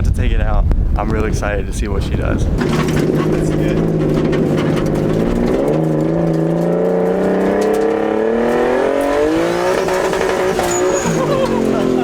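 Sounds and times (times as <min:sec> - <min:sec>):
car engine accelerating: 0:02.4 - 0:12.0.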